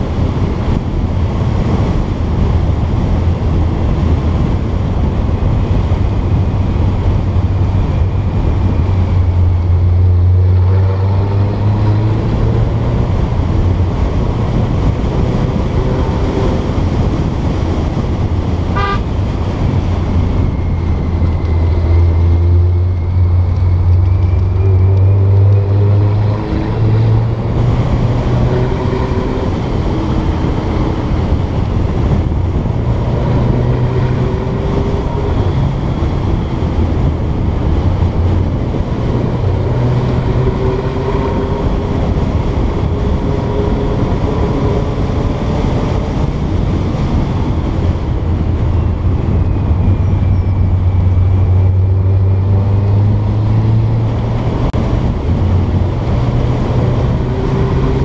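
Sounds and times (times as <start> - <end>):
short car horn toot: 18.7 - 19.1.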